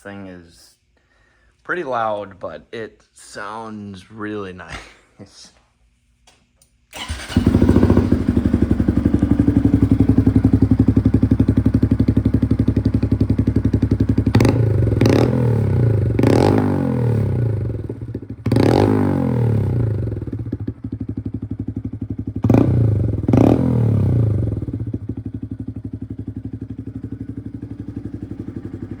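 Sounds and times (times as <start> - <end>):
motorcycle engine idling: 7.0 - 29.0.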